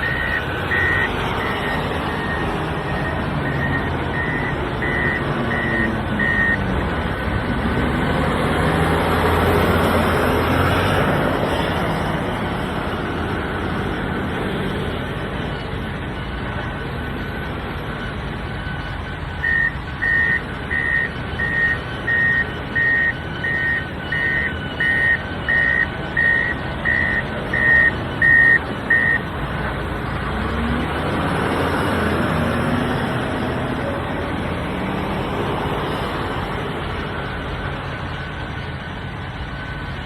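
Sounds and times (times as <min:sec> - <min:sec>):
diesel engine running: 0:00.0 - 0:40.0
reversing alarm beeping: 0:00.0 - 0:40.0.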